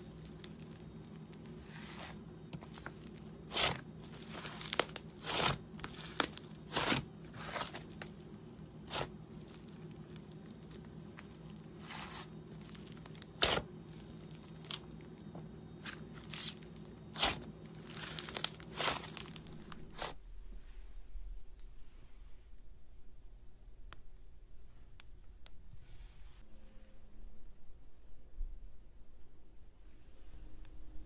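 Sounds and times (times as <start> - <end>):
slime crackling and tearing: 0.0 - 8.2, 8.8 - 14.9, 15.8 - 20.2
steady low hum: 0.0 - 31.0.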